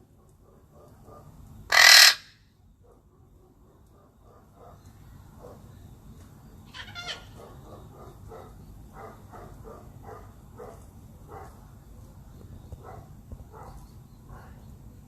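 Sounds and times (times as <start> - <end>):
parrot calling: 1.7 - 2.3, 6.7 - 7.7
parrot squawk: 1.7 - 2.3, 6.7 - 7.4.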